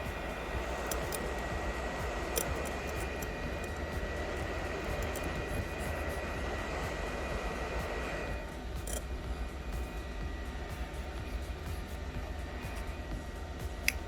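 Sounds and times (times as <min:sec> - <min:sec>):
tool scraping metal ticks: 0:00.0 - 0:06.4, 0:08.8 - 0:09.2
electric blower fan whooshing: 0:00.0 - 0:14.0.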